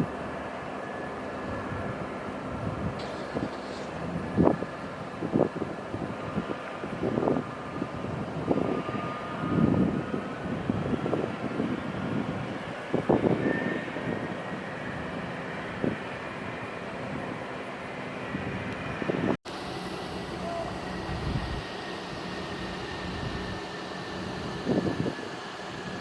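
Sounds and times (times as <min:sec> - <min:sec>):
wind buffeting microphone: 0:01.5 - 0:17.6, 0:18.2 - 0:26.0
jet engines rumbling: 0:01.9 - 0:26.0.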